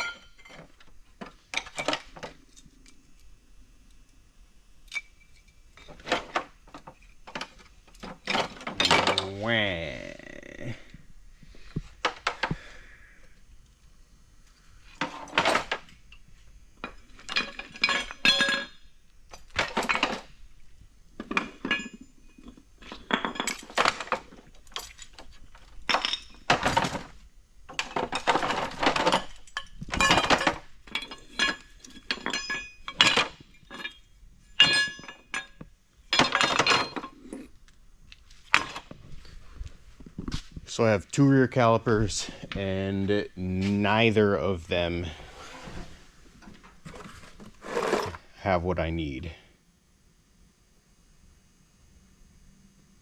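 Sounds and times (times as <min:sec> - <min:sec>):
metal parts clanking in a bucket: 0:00.0 - 0:02.7, 0:04.9 - 0:09.4, 0:14.9 - 0:16.2, 0:16.8 - 0:20.4, 0:21.2 - 0:37.4, 0:38.5 - 0:39.0.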